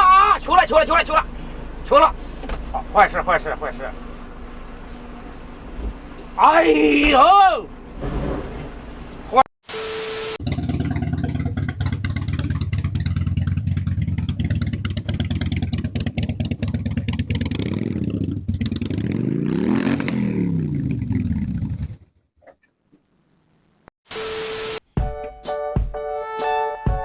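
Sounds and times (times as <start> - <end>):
vehicle engine clattering: 0.0 - 6.4, 10.4 - 19.0.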